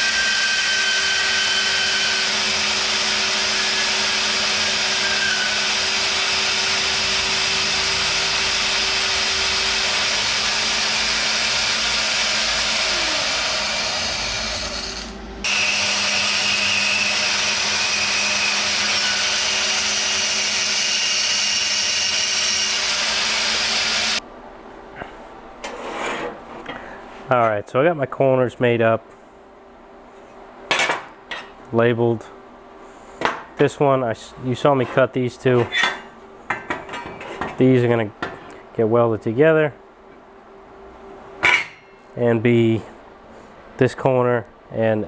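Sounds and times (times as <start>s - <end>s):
machine motor humming: 5.6s - 24.2s.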